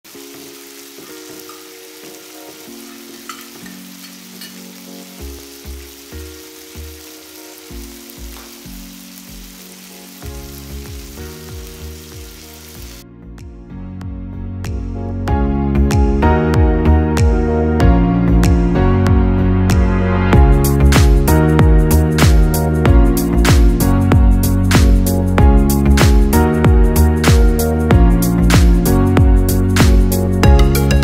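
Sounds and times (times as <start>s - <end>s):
chicken sizzling on a grill pan: 0.1s - 13.0s
soft background music: 0.1s - 31.0s.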